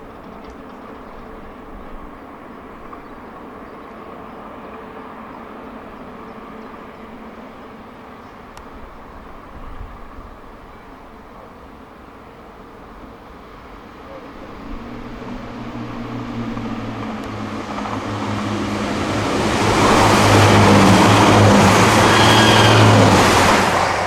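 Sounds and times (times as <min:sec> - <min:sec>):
diesel train engine drone: 0:00.0 - 0:24.0
train wheel and air rush: 0:14.2 - 0:24.0.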